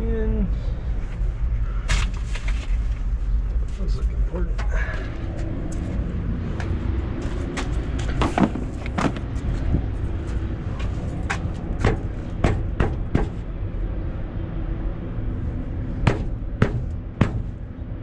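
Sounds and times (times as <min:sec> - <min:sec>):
steady low rumble: 0:00.0 - 0:18.0
sharp knocks and clunks: 0:08.1 - 0:09.3, 0:11.3 - 0:13.4, 0:16.0 - 0:17.6.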